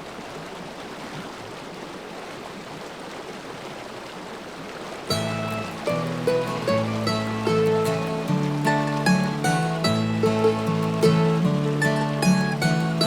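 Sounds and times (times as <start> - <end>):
river rushing: 0.0 - 13.0
music: 5.1 - 13.0.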